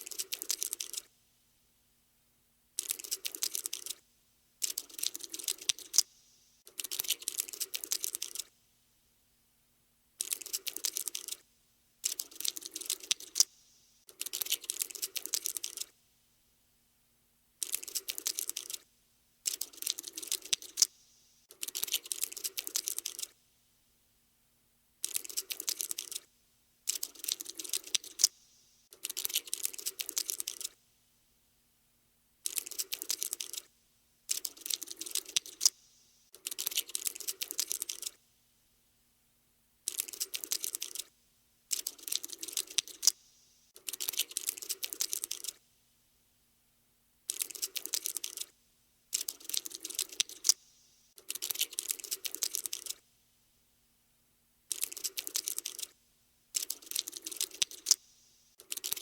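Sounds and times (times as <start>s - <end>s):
insect legs skittering: 56.6s - 58.0s.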